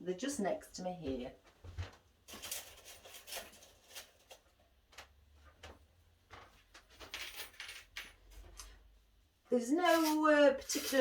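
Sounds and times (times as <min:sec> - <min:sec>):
small items clicking and rustling: 0:02.3 - 0:05.1, 0:09.8 - 0:11.0.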